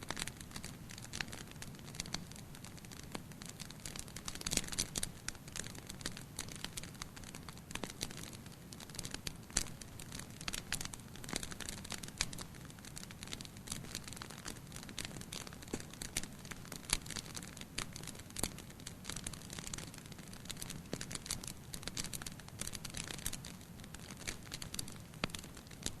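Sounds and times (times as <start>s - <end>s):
sharp pops and snaps: 0.0s - 26.0s
soft rumble of flames: 0.0s - 26.0s
wood fire crackling: 0.0s - 26.0s.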